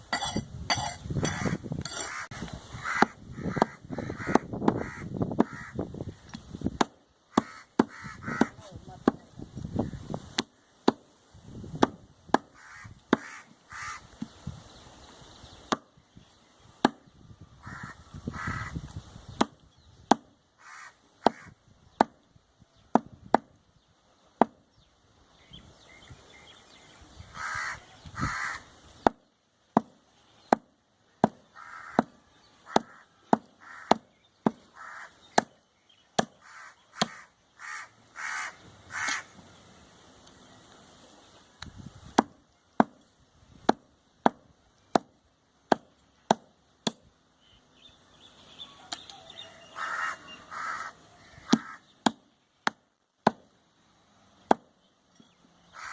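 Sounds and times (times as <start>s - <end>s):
cleaver chopping meat and bone: 2.9s - 5.6s, 6.7s - 9.3s, 11.8s - 12.5s, 16.8s - 17.1s, 19.3s - 20.3s, 21.2s - 22.2s, 22.9s - 23.5s, 24.4s - 24.6s, 29.0s - 34.7s, 35.3s - 35.6s, 36.2s - 36.4s, 37.0s - 37.2s, 42.2s - 43.0s, 43.6s - 47.1s, 51.4s - 53.5s, 54.5s - 54.7s.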